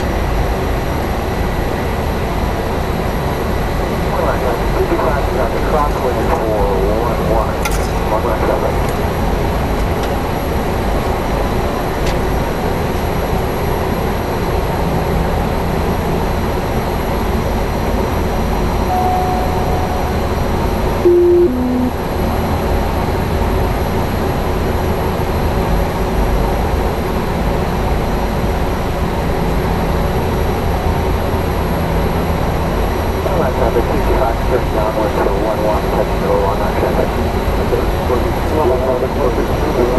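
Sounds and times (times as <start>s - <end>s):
turboprop engine whine: 0.0s - 39.9s
electronic two-note tone: 18.9s - 22.3s.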